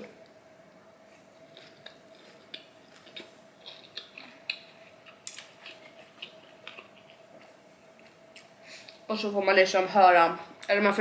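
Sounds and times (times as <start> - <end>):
faint steady hum: 0.0 - 11.0
person chewing food: 1.4 - 9.0.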